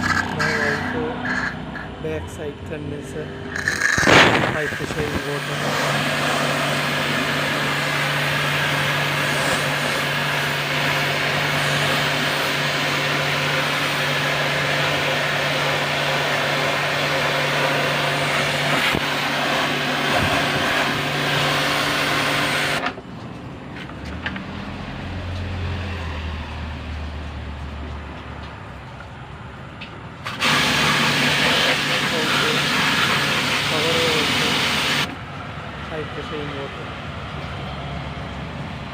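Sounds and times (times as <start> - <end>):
water jet spraying: 0.0 - 2.0, 3.5 - 22.8, 30.2 - 35.1
pressure washer hum: 0.0 - 27.4, 30.2 - 38.9.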